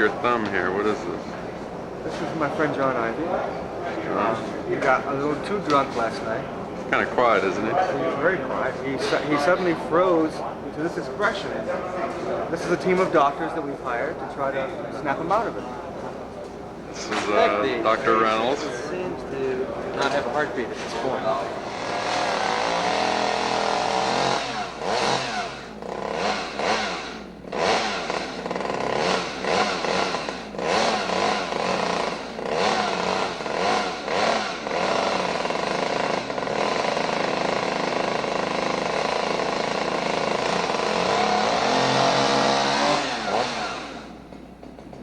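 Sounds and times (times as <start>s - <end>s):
chainsaw engine revving: 21.4s - 45.0s.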